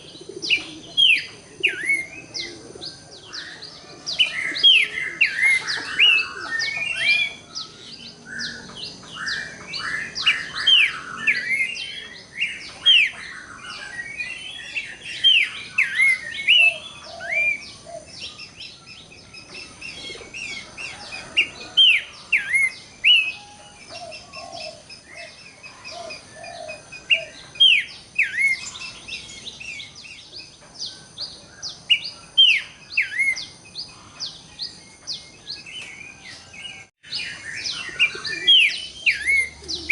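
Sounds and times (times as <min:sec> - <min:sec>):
bird whistles and chirps: 0:35.9 - 0:39.9.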